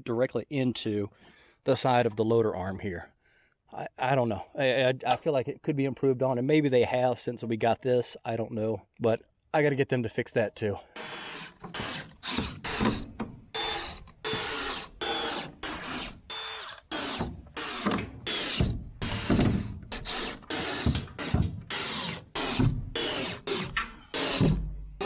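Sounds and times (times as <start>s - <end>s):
tool mechanical strokes on wood: 10.9s - 25.0s.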